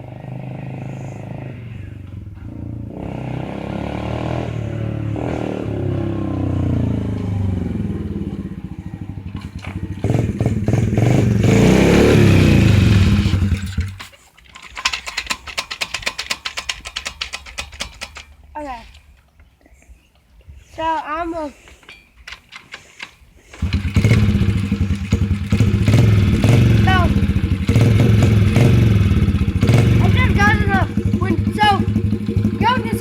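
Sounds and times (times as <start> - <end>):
dirt bike engine revving: 0.0 - 14.2, 22.8 - 33.0
sharp rattling clatter: 9.2 - 19.4, 20.8 - 33.0.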